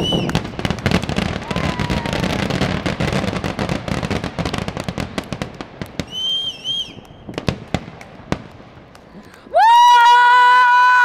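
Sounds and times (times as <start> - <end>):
warbling firework whistle: 0.0 - 0.6, 6.0 - 7.4
firework bangs: 0.0 - 9.3
fireworks crackling: 0.0 - 11.0.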